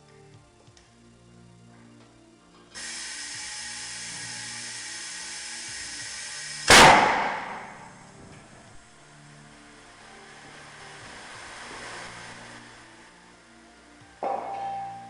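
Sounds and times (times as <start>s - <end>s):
air filling tyre: 2.7s - 15.0s
compressed air hissing: 2.7s - 15.0s
loud air blast: 2.8s - 8.3s, 10.4s - 13.1s.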